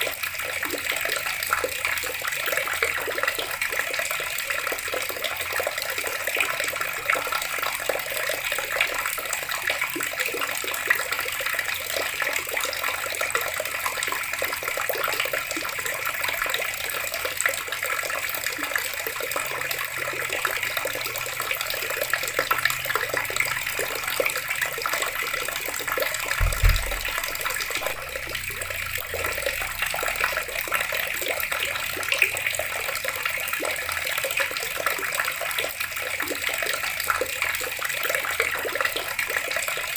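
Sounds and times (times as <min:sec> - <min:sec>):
water running from a tap: 0:00.0 - 0:39.9
low thud: 0:26.4 - 0:29.1.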